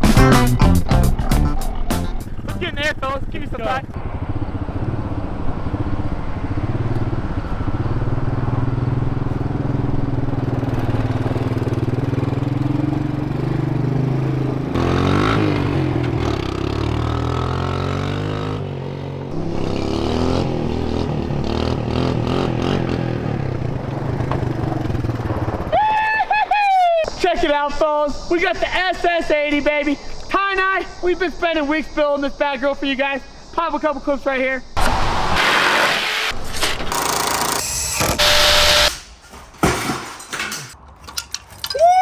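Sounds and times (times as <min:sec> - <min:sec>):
atv engine revving: 0:01.8 - 0:25.7, 0:34.8 - 0:39.0
knocks and clatter: 0:39.0 - 0:41.6.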